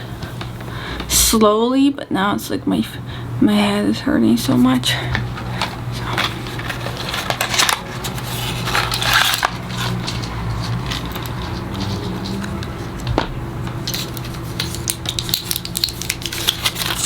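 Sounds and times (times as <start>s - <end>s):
steady low hum: 0.0s - 17.0s
pill package crinkling and clicking: 6.2s - 12.7s, 13.9s - 17.0s.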